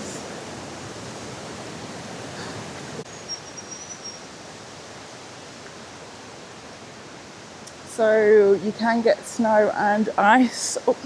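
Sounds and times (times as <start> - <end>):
waterfall rushing: 0.0 - 3.1.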